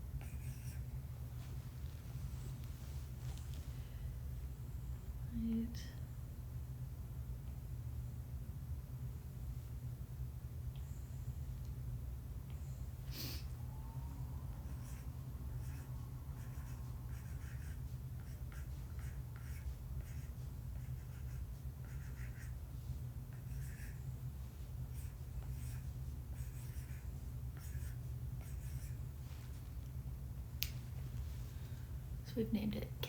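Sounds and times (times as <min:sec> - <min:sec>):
steady low hum: 0:00.0 - 0:33.0
stylus scratching on tablet screen: 0:00.2 - 0:00.9, 0:14.6 - 0:22.6, 0:23.3 - 0:24.1, 0:24.8 - 0:29.0.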